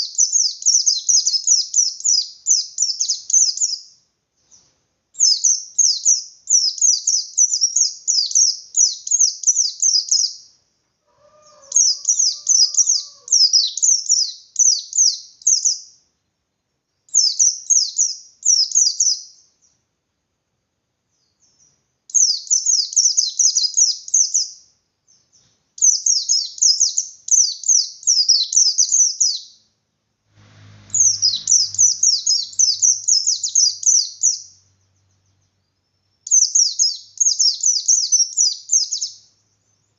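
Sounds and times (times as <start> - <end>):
faint low hum: 29.6 - 37.2
bird singing rapid high notes: 30.6 - 39.3.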